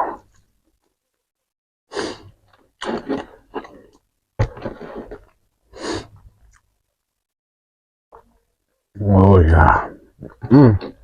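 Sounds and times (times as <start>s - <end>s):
person breathing and sighing: 5.7s - 6.2s.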